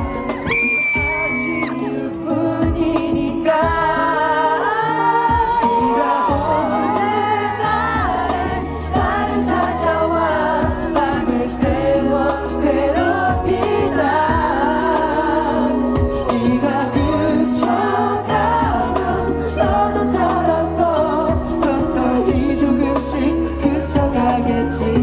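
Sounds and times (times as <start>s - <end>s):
men singing ballad over backing track: 0.0s - 25.0s
steady bass: 5.2s - 25.0s.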